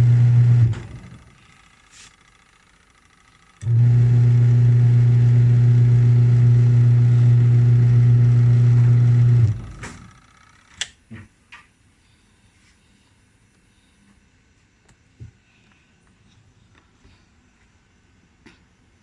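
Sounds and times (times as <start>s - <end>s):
washing machine motor humming: 0.0s - 10.5s.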